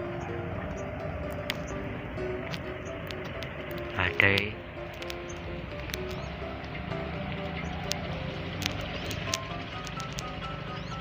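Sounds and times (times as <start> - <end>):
kite hummer bow droning: 0.0 - 11.0
faint ticks: 2.4 - 11.0.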